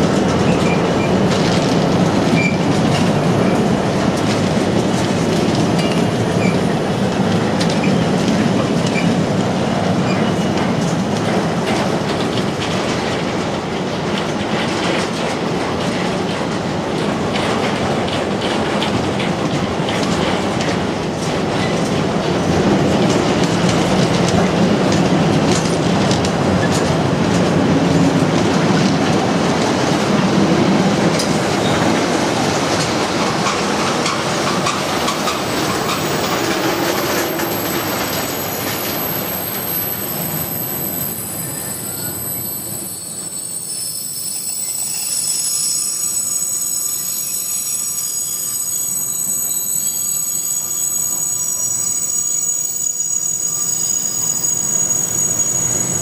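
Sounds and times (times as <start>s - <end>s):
freight train wagons rolling: 0.0s - 56.0s
wheels clattering over rail joints: 10.0s - 39.4s
high-pitched wheel squeal: 36.8s - 56.0s.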